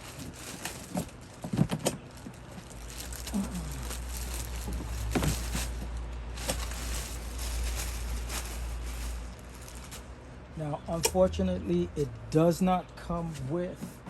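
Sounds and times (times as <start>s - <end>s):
plastic packaging rustling: 0.0s - 10.2s
steady low hum: 0.0s - 14.0s.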